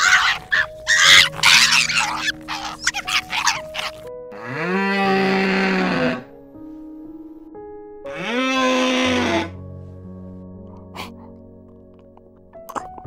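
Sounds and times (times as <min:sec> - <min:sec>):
animal rasping calls: 0:00.0 - 0:06.3, 0:08.1 - 0:09.6
long rising animal call: 0:00.0 - 0:06.3, 0:08.1 - 0:09.6
soft background music: 0:00.0 - 0:13.0.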